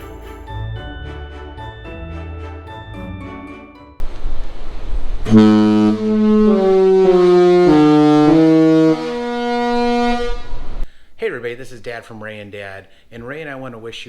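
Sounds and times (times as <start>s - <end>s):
ship horn melody: 4.0s - 10.8s.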